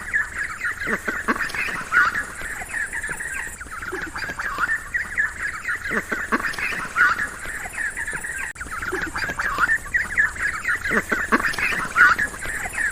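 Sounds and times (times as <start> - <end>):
ducks quacking: 0.0 - 12.9.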